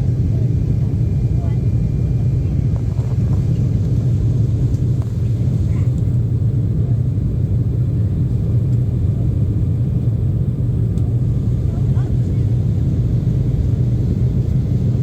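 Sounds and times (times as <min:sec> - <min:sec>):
jet engines and airflow rumble: 0:00.0 - 0:15.0.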